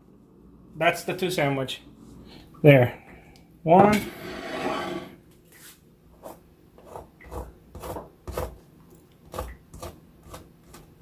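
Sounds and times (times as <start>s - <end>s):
knife sawing through bread roll: 6.2s - 8.6s.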